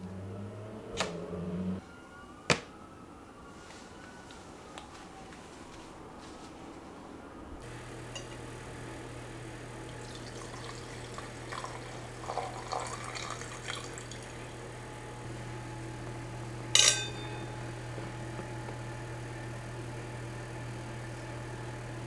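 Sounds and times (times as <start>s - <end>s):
steady low hum: 7.6s - 20.8s
glass set down with ringing clink: 8.1s - 8.4s, 16.8s - 17.7s
tableware clinking: 8.1s - 8.4s, 16.7s - 17.7s.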